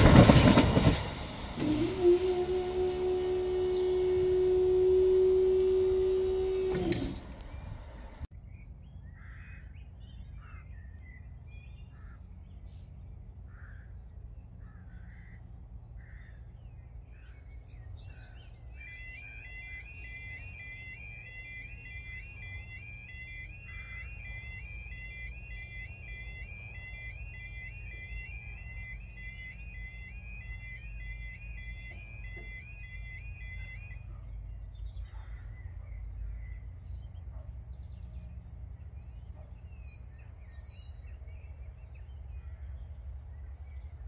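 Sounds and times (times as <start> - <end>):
train passing close by: 0.0 - 8.2
two-tone crossing warning alarm: 0.0 - 8.3, 18.1 - 37.4
birds chirping: 0.0 - 44.0.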